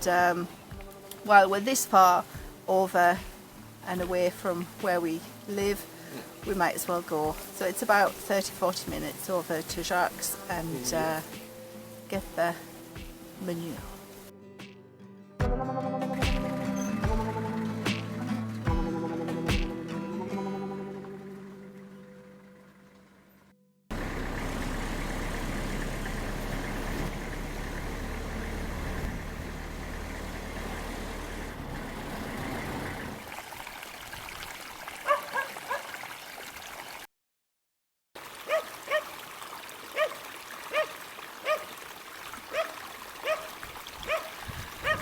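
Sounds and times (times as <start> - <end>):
car engine and road noise: 0.0 - 14.3, 20.9 - 33.4
dog barking: 35.0 - 36.0, 38.4 - 39.2, 39.9 - 41.8, 42.5 - 45.0.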